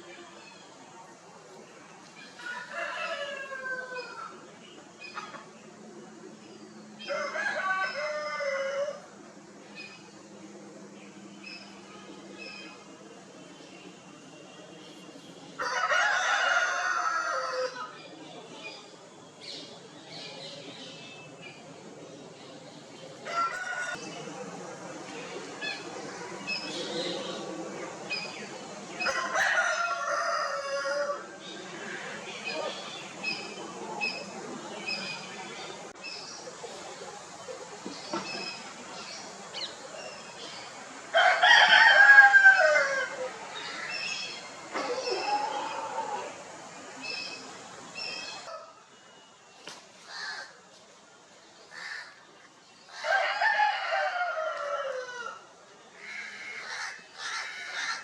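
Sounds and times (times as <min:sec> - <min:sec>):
rooster crowing: 0:02.4 - 0:04.3, 0:07.1 - 0:09.1, 0:15.6 - 0:17.9, 0:23.2 - 0:24.0, 0:29.0 - 0:31.3, 0:41.1 - 0:43.3, 0:53.0 - 0:55.5
chicken calls: 0:41.2 - 0:46.4.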